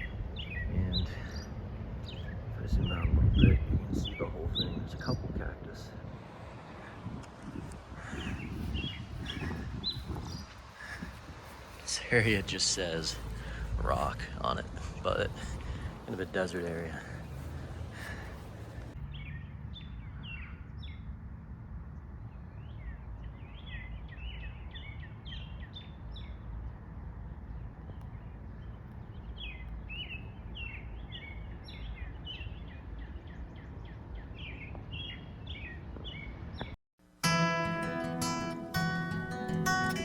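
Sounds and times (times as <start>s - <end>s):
small birds chirping: 0.0s - 21.2s, 22.0s - 36.8s
low outdoor rumble: 0.0s - 35.0s.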